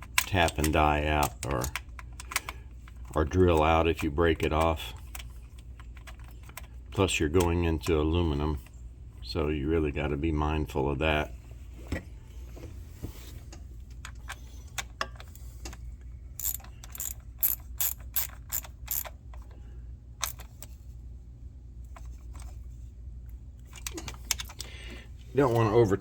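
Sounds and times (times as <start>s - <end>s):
hand ratchet clicking: 16.4s - 19.2s.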